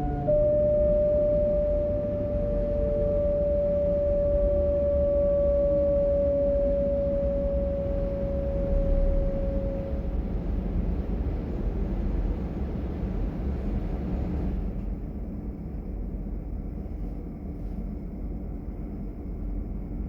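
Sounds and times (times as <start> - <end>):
electric train converter whining: 0.0 - 14.8
low rumble of moving train: 0.0 - 20.0.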